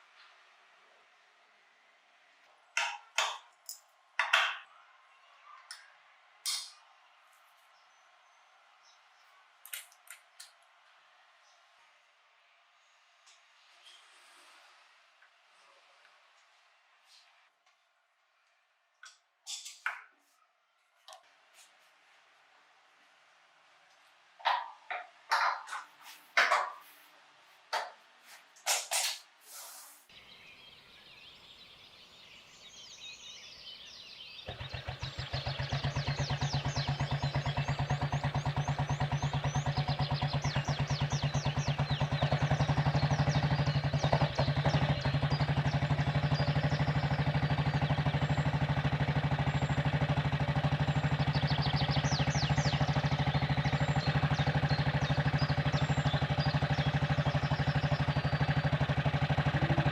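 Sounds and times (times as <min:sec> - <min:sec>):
motorcycle engine starting and running: 0:24.4 - 0:26.8, 0:33.6 - 0:59.9.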